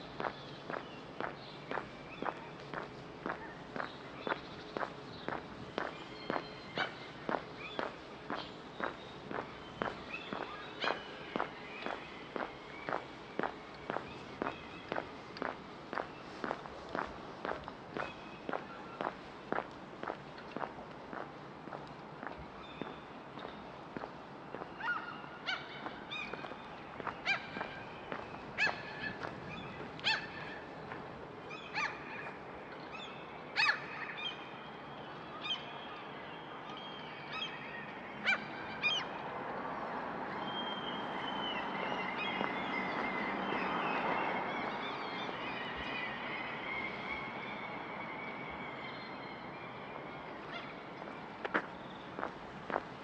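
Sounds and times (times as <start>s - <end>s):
birds calling: 0.0s - 32.3s, 40.5s - 47.1s
background noise: 0.0s - 53.0s.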